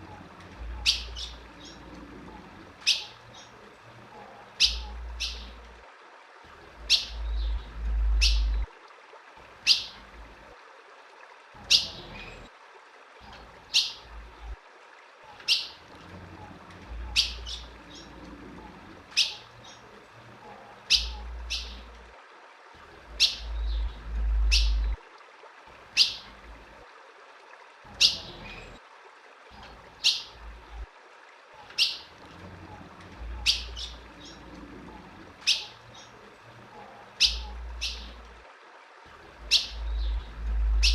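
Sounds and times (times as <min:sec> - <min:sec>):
bird sharp chirp calls: 0:20.9 - 0:21.8, 0:37.2 - 0:38.1
low rumble: 0:39.8 - 0:40.9.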